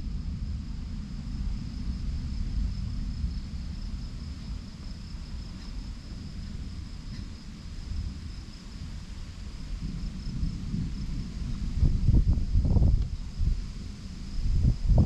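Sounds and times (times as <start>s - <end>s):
low thunder rumble: 0.0s - 15.0s.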